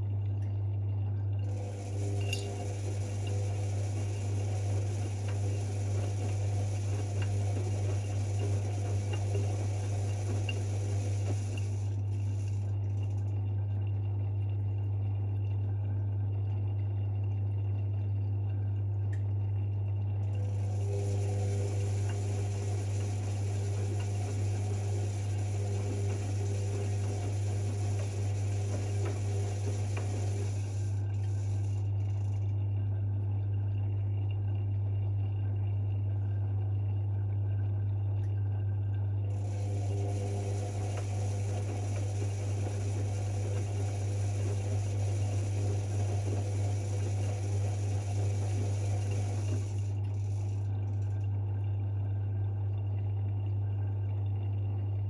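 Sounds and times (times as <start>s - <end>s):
washing machine hum: 0.0s - 55.0s
washing machine drum churning laundry: 1.4s - 13.7s, 20.1s - 32.5s, 39.3s - 52.1s.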